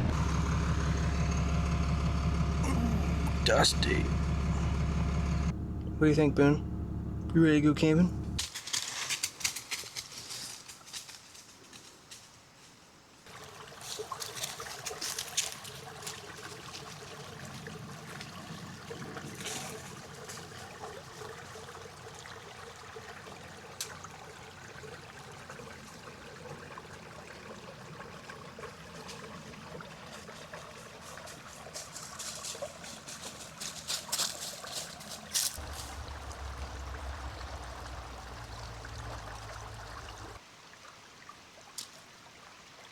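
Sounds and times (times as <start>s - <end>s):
low rumble: 0.0s - 8.4s, 35.6s - 40.4s
creek trickling: 0.0s - 9.0s, 13.3s - 42.9s.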